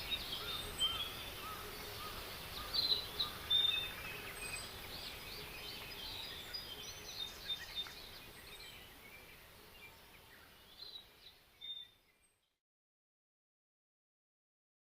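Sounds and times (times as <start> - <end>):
birds chirping and singing: 0.0 - 12.4
faint background hiss: 0.0 - 12.6.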